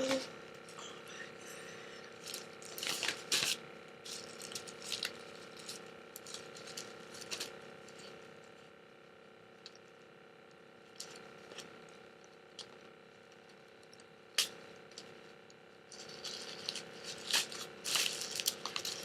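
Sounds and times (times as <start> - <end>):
faint steady hum: 0.0 - 19.0
packaging rustling and rattling: 16.0 - 19.0.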